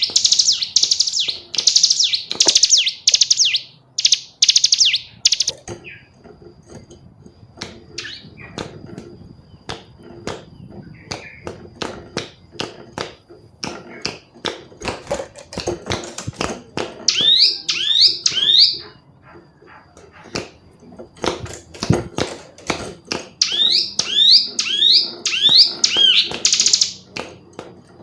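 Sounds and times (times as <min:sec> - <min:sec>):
bird calling with sharp clipped notes: 0:00.0 - 0:06.1, 0:08.0 - 0:08.6, 0:17.1 - 0:19.0, 0:23.4 - 0:27.1.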